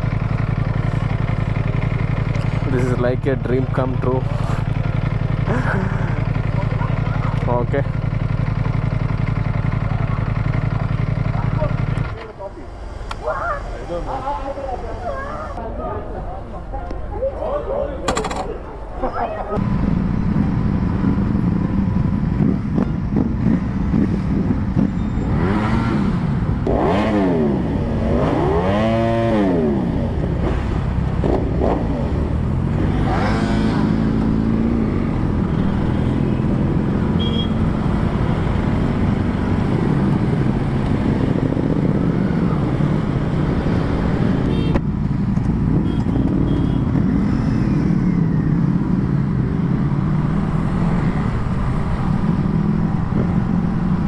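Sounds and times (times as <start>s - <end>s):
motorcycle engine idling: 0.0s - 12.4s, 33.9s - 46.8s
motorcycle engine revving: 0.0s - 12.4s, 19.6s - 54.0s.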